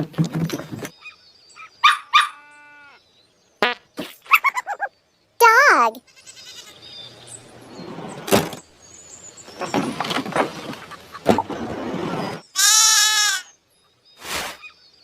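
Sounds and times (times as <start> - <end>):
dog barking: 1.8 - 2.4
sheep bleating: 2.3 - 3.0.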